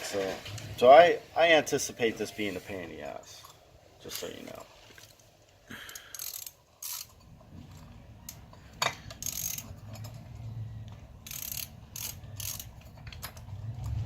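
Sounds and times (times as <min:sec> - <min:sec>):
socket ratchet clicking: 0:05.9 - 0:07.2, 0:09.1 - 0:10.2, 0:11.2 - 0:14.0.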